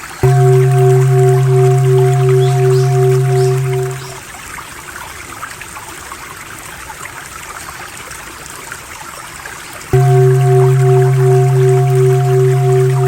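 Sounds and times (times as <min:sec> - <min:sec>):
water trickling and splashing: 0:00.0 - 0:13.0
low electronic drone: 0:00.2 - 0:04.2, 0:10.0 - 0:13.0.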